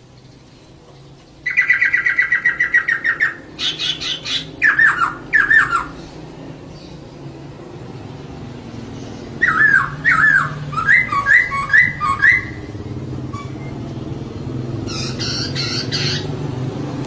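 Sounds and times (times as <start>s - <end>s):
laughingthrush calling: 1.4s - 7.0s, 8.8s - 13.6s, 14.8s - 16.5s.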